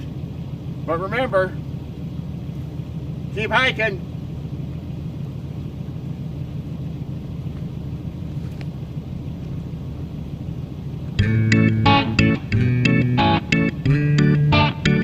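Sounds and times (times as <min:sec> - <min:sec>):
steady low rumble: 0:00.0 - 0:14.9
guitar music: 0:11.2 - 0:15.0.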